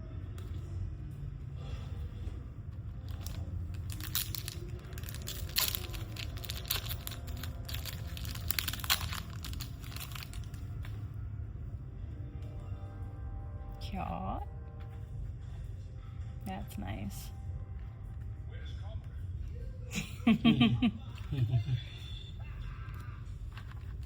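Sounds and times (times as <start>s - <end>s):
card pack wrappers crinkling and tearing: 3.0s - 10.9s, 23.4s - 24.0s.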